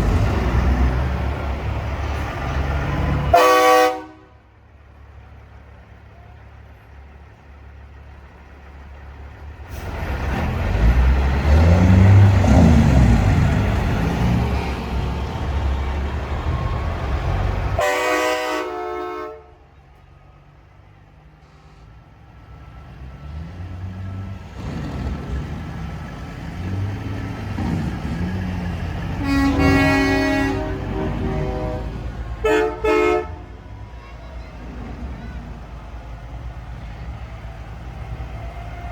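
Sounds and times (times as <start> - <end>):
trucks driving past: 0.0 - 38.9
truck horn blast: 3.1 - 4.4, 17.6 - 19.8, 27.2 - 34.6.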